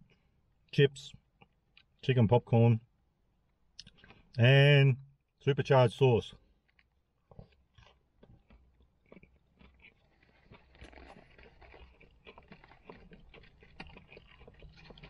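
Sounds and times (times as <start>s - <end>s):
chewing crunchy food: 3.7s - 4.4s, 6.4s - 15.0s
cardboard food box crackling: 10.1s - 15.0s.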